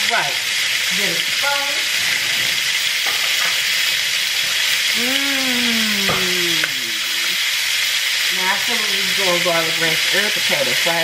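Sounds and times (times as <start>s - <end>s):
chicken frying in a pan: 0.0s - 11.0s
person's voice falling in pitch: 4.9s - 7.1s.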